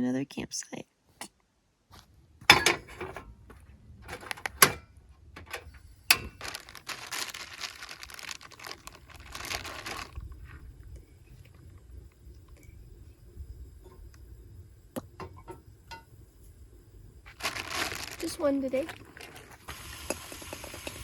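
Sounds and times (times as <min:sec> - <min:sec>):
rustling: 0:06.1 - 0:11.9, 0:17.2 - 0:20.8.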